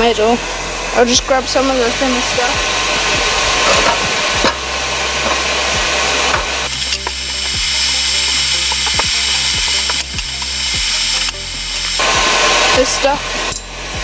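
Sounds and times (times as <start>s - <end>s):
forge blower rushing air: 0.2s - 13.5s
steel stock clinking: 6.3s - 12.0s.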